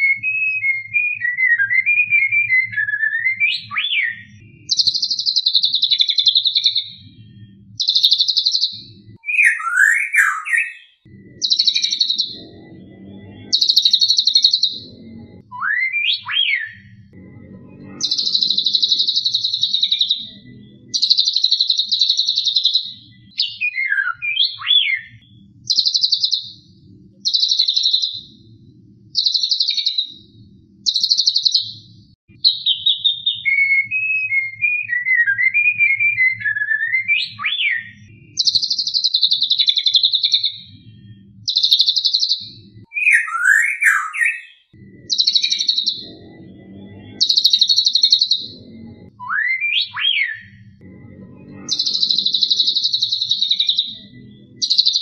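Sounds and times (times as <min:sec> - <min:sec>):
bird whistled notes: 0:00.0 - 0:06.9, 0:07.8 - 0:12.4, 0:15.5 - 0:16.9, 0:20.9 - 0:26.4, 0:32.4 - 0:40.5, 0:41.5 - 0:46.0, 0:49.2 - 0:50.6.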